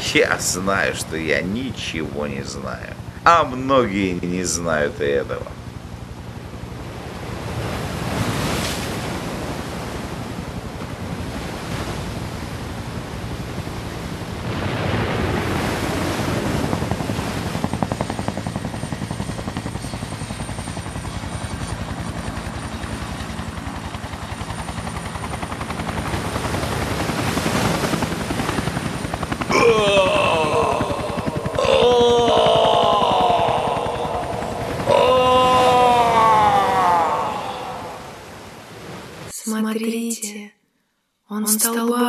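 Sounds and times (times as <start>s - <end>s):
wind: 0.0s - 39.4s
surf: 6.7s - 18.0s, 26.2s - 39.3s.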